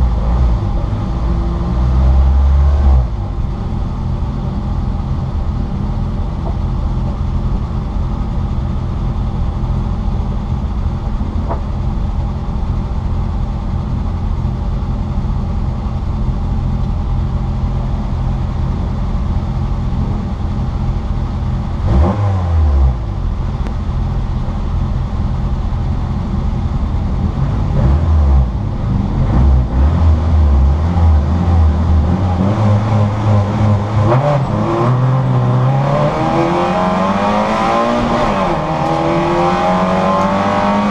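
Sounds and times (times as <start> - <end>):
race car engine revving: 21.6 - 23.2, 27.0 - 40.9.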